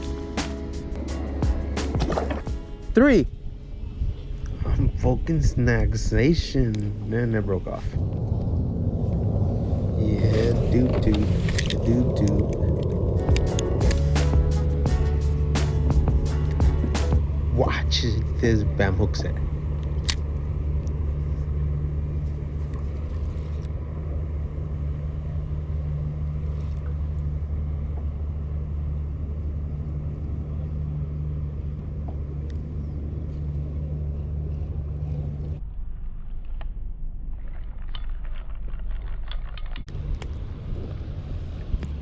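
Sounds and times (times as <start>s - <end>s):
low motor drone: 0.0s - 42.0s.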